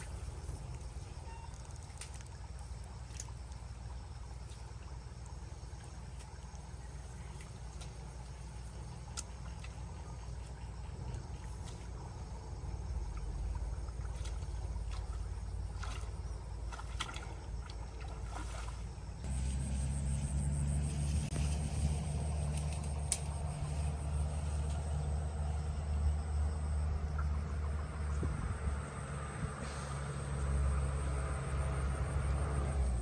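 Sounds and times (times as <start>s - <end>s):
motor engine humming: 19.0s - 33.0s.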